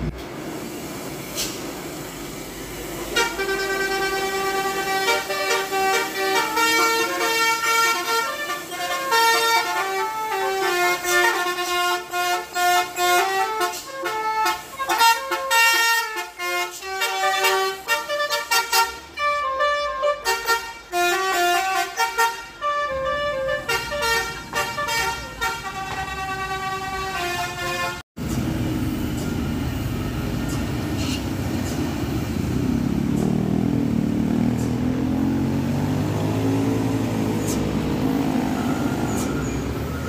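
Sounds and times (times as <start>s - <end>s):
bus musical horn playing a tune: 3.1s - 28.0s.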